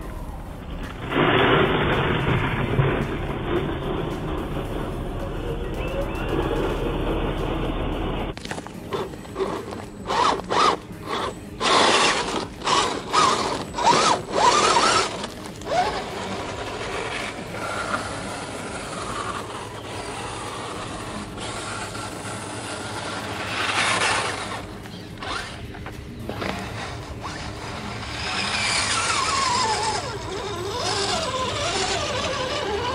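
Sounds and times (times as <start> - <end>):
electric motor whirring: 7.5 - 32.9.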